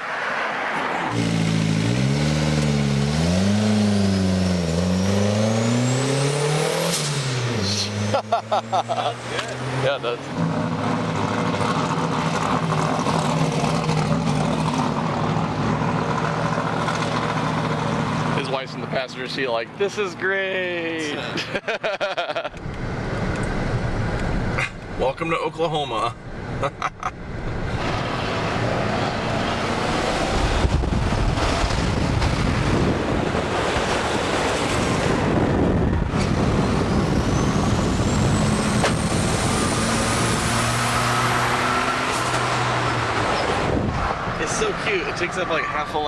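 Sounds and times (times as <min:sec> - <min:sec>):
car engine hum: 0:00.0 - 0:46.0
road and wind noise: 0:00.0 - 0:46.0
wind on microphone: 0:30.0 - 0:39.7.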